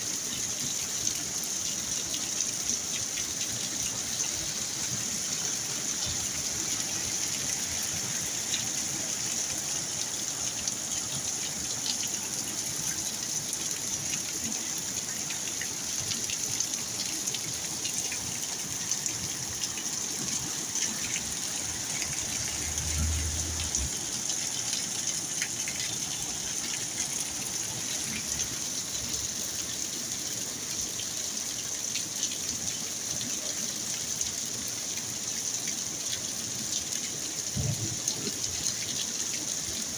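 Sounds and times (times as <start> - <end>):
running water: 0.0 - 39.9
heavy rain hissing: 18.6 - 29.4.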